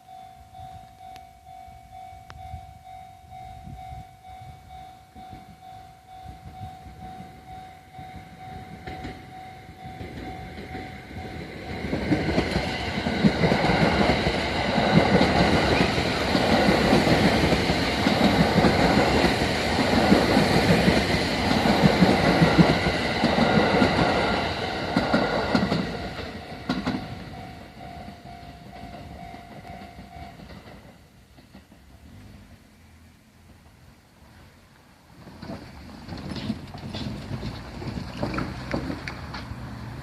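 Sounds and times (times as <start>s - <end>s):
level crossing bell ringing: 0.0s - 11.9s, 26.0s - 30.5s
train wheels clattering over joints: 8.6s - 32.0s, 35.2s - 39.6s.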